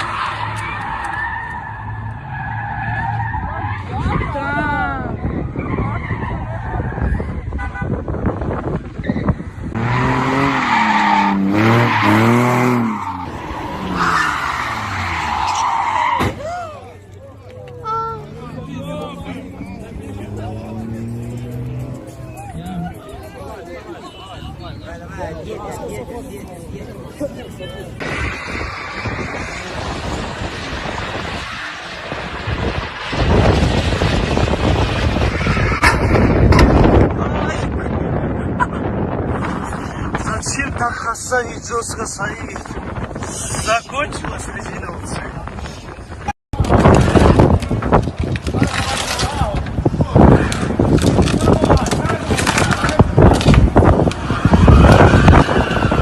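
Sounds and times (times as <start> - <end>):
tyres skidding on road: 0.0 - 41.1, 42.7 - 56.0
vehicle noise: 0.0 - 56.0
wind buffeting microphone: 3.9 - 10.5, 27.8 - 56.0
car engine revving: 9.7 - 15.6, 18.2 - 23.3.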